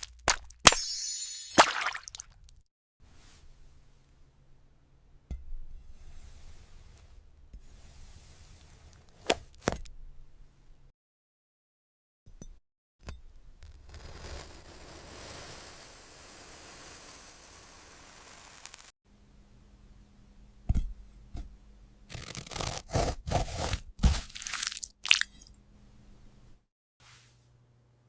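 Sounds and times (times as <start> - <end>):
crunching and scraping handling: 22.2 - 25.5.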